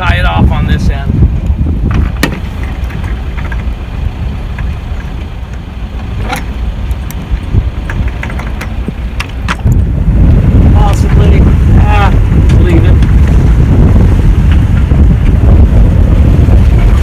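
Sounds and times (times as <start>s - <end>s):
sailboat low rumble: 0.0s - 17.0s
deck hardware clicks and knocks: 1.4s - 9.9s, 14.4s - 15.4s.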